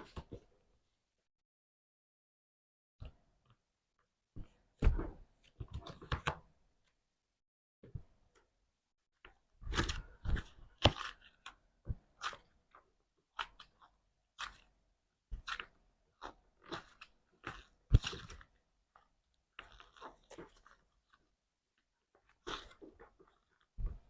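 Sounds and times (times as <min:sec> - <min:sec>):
slime crackling and squelching: 0:15.3 - 0:21.4, 0:22.2 - 0:24.0.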